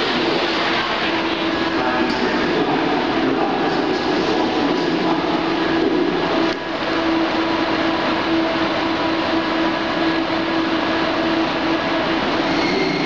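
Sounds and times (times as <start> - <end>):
train rumbling: 0.0 - 13.0
humming tone: 5.8 - 13.0.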